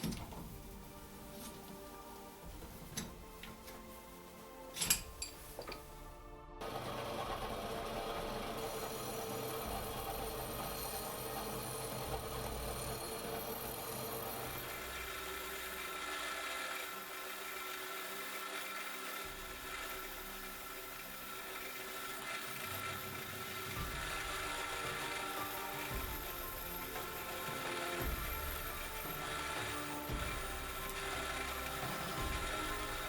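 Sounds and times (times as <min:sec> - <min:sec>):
small electric power tool running: 0:06.6 - 0:33.0.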